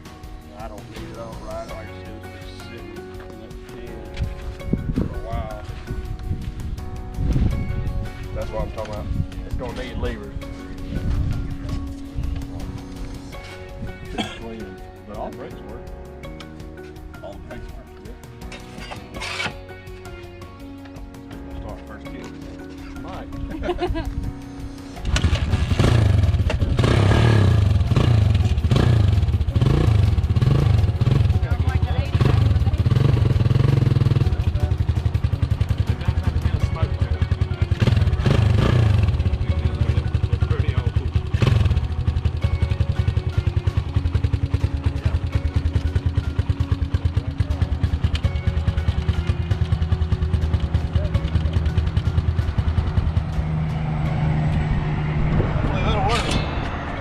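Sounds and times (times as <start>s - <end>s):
motorcycle engine running: 25.0s - 57.0s.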